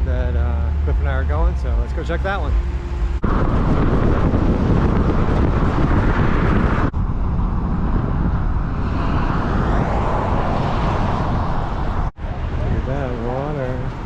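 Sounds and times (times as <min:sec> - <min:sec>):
truck road and engine noise: 0:00.0 - 0:14.0.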